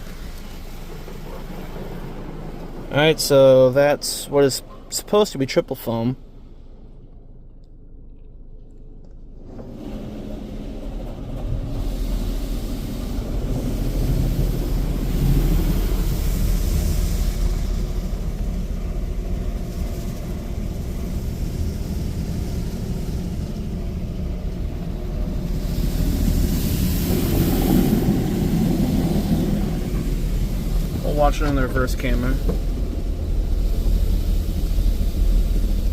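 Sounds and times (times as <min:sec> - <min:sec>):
water spray drumming on car: 0:00.0 - 0:05.2, 0:09.4 - 0:35.9
pump rumble: 0:00.0 - 0:35.9.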